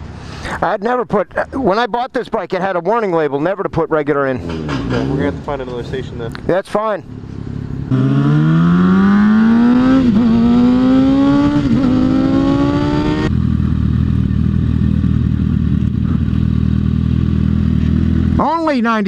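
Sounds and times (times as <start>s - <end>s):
road noise: 0.0s - 19.0s
motorcycle engine accelerating: 4.3s - 18.6s.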